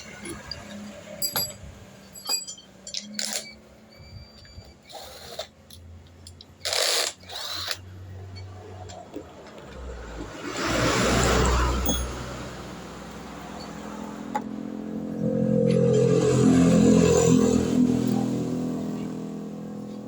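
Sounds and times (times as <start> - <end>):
metal tools clinking: 0.0 - 3.6, 4.5 - 9.0, 11.4 - 12.6.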